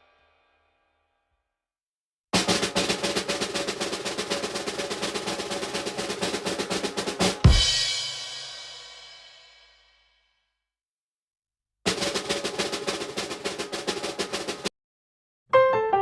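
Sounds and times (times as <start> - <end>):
snare drum roll: 2.4 - 9.6, 11.9 - 14.7
cymbal and bass drum hit: 2.4 - 9.8.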